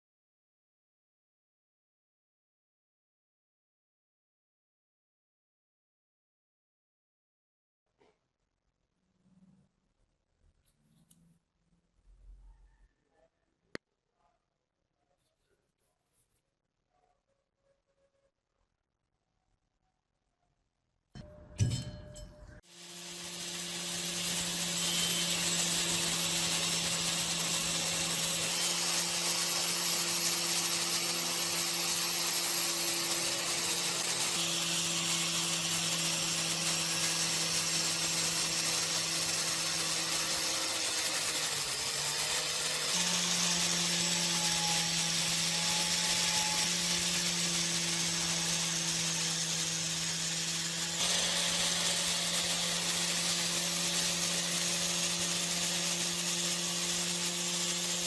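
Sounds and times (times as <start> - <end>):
power tool motor humming: 22.6 - 58.0.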